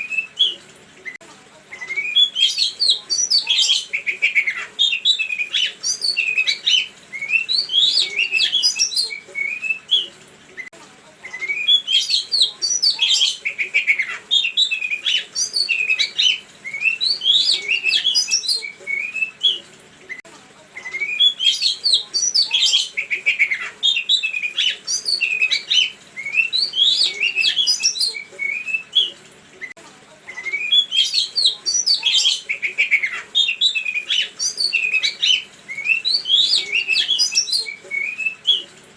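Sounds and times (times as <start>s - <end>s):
songbird singing: 1.8s - 10.1s, 11.3s - 19.6s, 20.8s - 29.2s, 30.3s - 38.7s.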